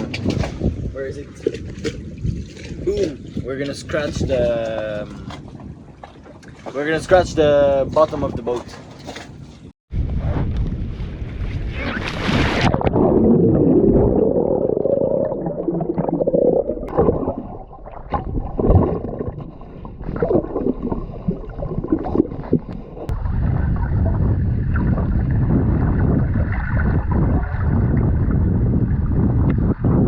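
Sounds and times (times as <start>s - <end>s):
steady underwater rushing: 0.0s - 9.5s, 10.1s - 30.0s
knocks and scrapes on hull: 0.0s - 10.8s
underwater gurgling and bubbling: 12.4s - 30.0s.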